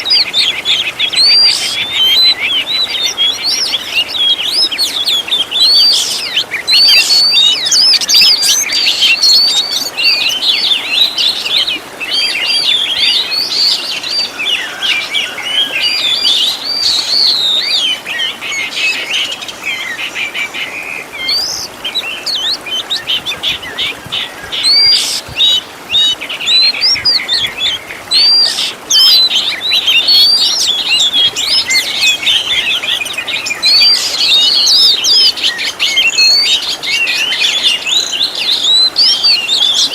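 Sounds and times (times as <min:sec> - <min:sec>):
magpie-robin singing whistled phrases: 0:00.0 - 0:20.0, 0:21.2 - 0:39.9.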